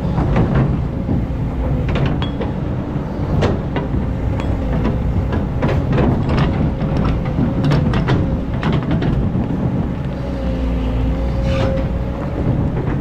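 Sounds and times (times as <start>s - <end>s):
diesel engine under load: 0.0s - 13.0s
metal parts clanking: 1.8s - 9.2s.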